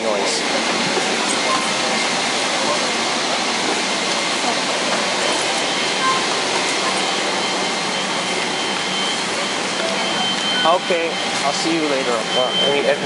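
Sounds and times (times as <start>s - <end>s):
faint high whine: 5.1s - 13.0s.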